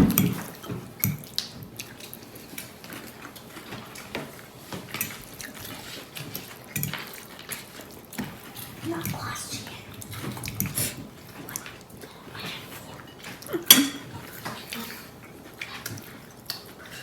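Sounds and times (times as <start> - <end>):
utensils clicking on plates: 3.9 - 9.2, 12.4 - 14.8.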